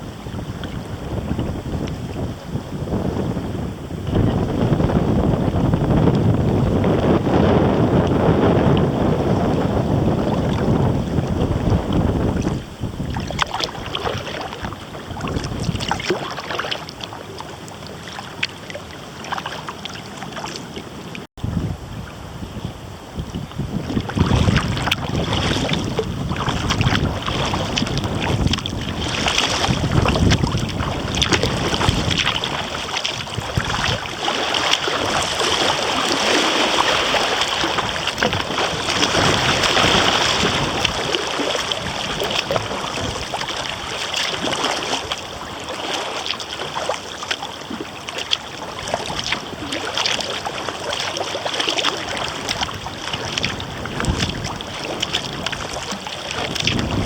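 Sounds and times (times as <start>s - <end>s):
paddle splashing and dripping: 0.0s - 21.3s, 23.0s - 57.0s
wind rumbling on microphone: 0.0s - 57.0s.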